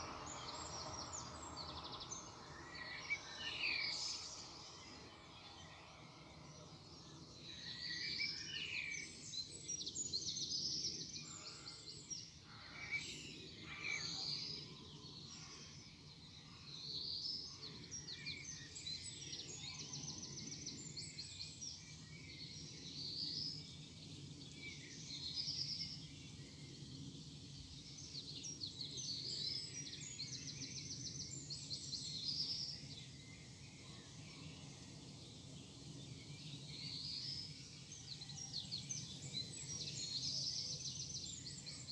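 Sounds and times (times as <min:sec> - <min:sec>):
songbirds singing: 0:00.0 - 0:41.9.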